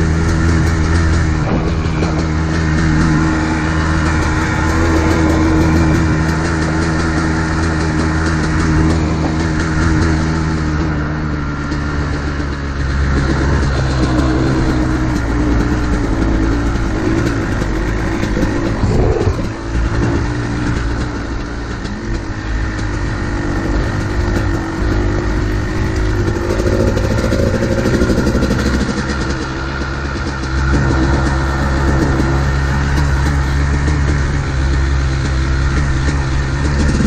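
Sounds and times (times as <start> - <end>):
dirt bike engine running hard: 0.0 - 37.0
wind noise: 0.0 - 37.0.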